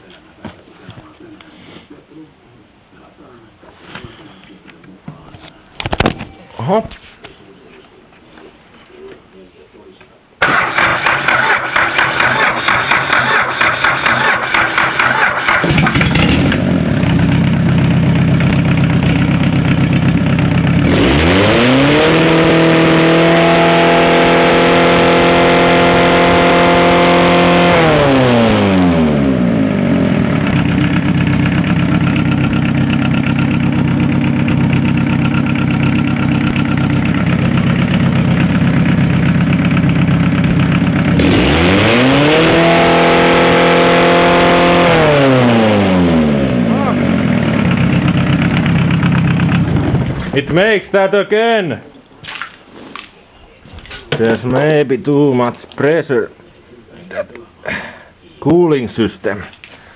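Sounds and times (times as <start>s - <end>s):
diesel engine idling and revving: 10.4s - 50.3s.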